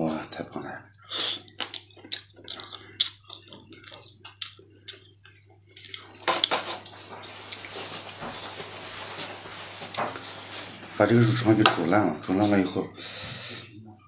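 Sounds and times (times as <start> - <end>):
wet chewing and lip-smacking: 1.3 - 6.5.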